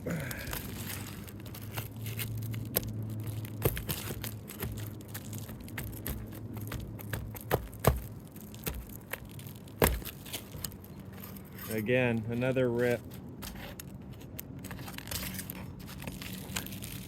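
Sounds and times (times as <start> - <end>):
low steady hum: 0.0 - 17.0
roof shingles being pried loose: 0.1 - 11.7.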